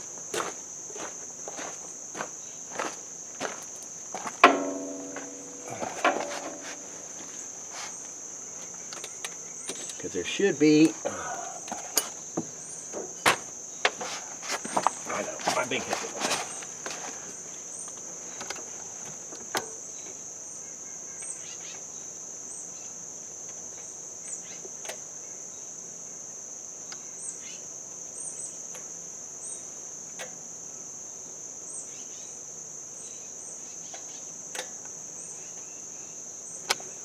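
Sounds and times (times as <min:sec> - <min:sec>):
crickets droning: 0:00.0 - 0:37.0
clicks and taps of metal tools: 0:11.7 - 0:12.2.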